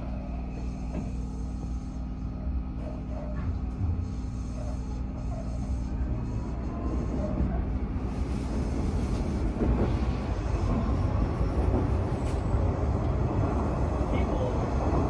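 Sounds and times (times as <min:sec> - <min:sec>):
train wheels rumbling on rails: 0:02.8 - 0:15.0.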